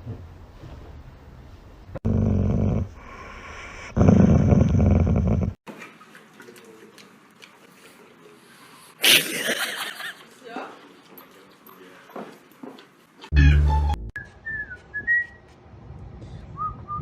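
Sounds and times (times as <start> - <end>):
pet growling: 2.0 - 5.6.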